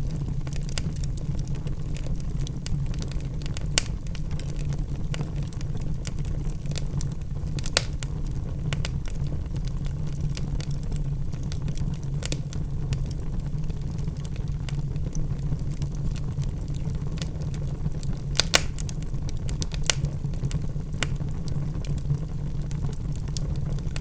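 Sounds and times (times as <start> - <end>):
low rumble of flame: 0.0 - 24.0
wood fire crackling: 0.0 - 24.0
logs popping: 18.3 - 19.0.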